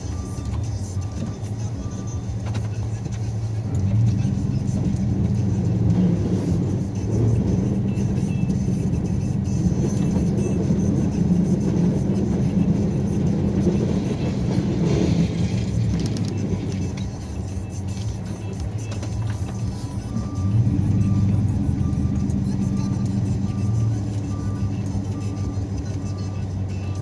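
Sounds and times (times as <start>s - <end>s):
truck engine droning: 0.0s - 27.0s.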